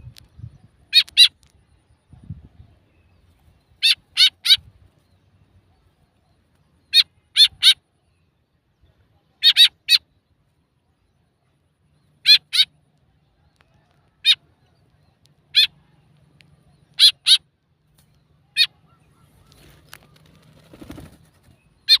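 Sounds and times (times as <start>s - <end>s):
bird giving harsh calls: 3.8s - 4.7s, 9.4s - 10.0s, 12.2s - 12.8s, 16.9s - 17.5s.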